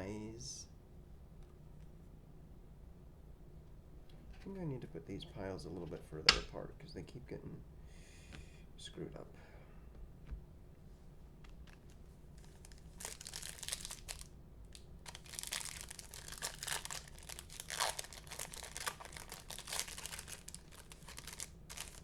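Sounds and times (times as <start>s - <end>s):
foil wrapper tearing and crinkling: 11.6s - 22.0s.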